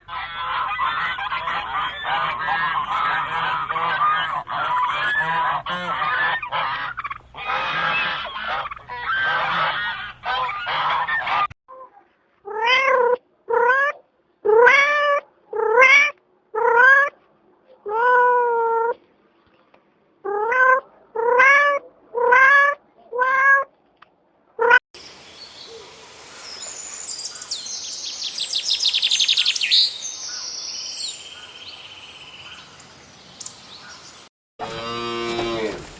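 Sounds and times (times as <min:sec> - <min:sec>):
chorus of animal calls: 0:00.0 - 0:17.2.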